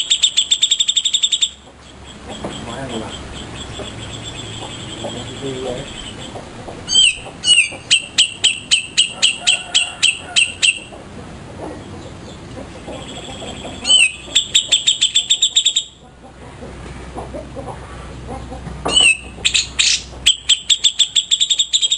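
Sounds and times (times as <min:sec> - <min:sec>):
songbird calling sharp high notes: 0:00.0 - 0:10.9, 0:12.9 - 0:16.0, 0:18.9 - 0:21.9.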